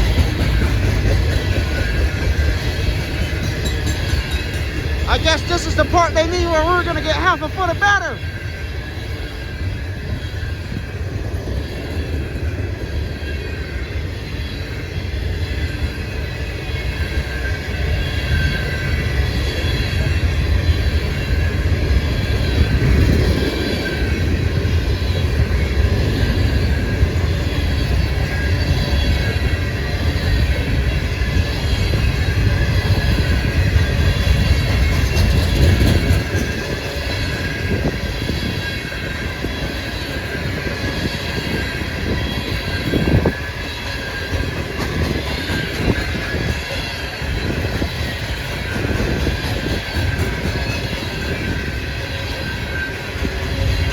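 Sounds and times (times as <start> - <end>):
train wheels rumbling on rail: 0.0 - 53.9
high wheel squeal: 11.5 - 53.9.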